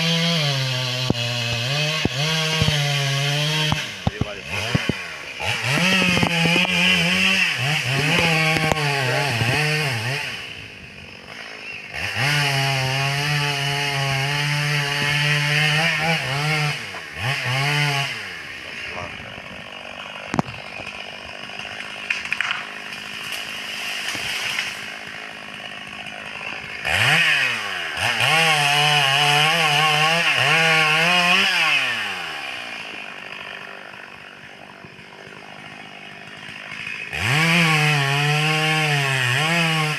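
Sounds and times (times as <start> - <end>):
chainsaw cutting timber: 0.0 - 39.9.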